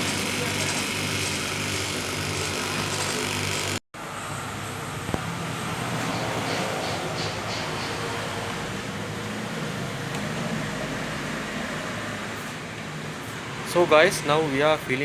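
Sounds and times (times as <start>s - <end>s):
machine humming: 0.0s - 3.8s.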